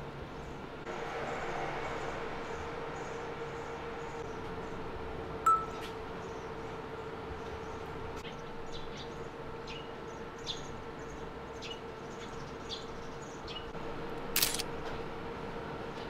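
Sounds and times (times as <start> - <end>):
small birds chirping: 7.4 - 13.8.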